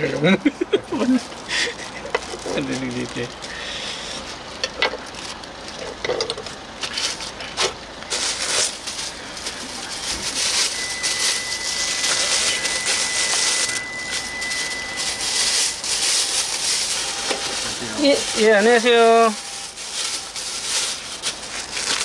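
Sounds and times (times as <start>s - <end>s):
thin high tone: 8.2s - 22.0s.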